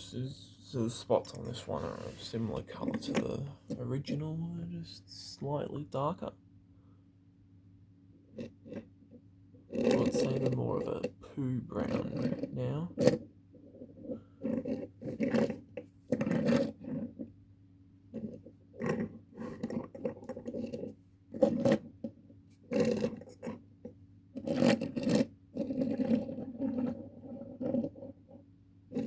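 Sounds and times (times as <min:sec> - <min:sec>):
toy handling scrapes and knocks: 0:11.8 - 0:17.3, 0:18.1 - 0:23.6, 0:24.4 - 0:28.1.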